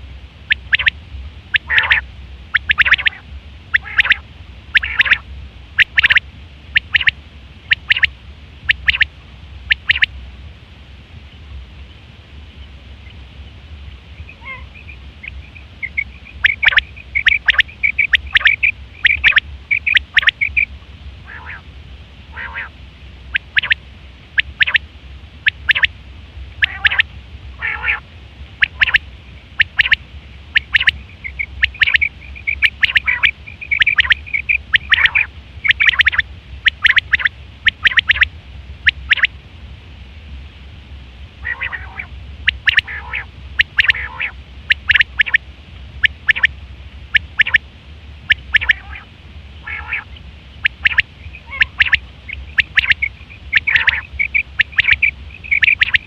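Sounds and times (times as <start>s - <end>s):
steady low hum: 0.0s - 56.0s
quail calling: 0.5s - 5.2s, 5.8s - 9.1s, 9.7s - 10.1s, 14.2s - 21.6s, 22.3s - 23.8s, 24.4s - 24.8s, 25.4s - 25.9s, 26.6s - 28.0s, 28.6s - 29.0s, 29.6s - 39.3s, 41.4s - 45.4s, 46.0s - 46.5s, 47.1s - 47.6s, 48.3s - 56.0s.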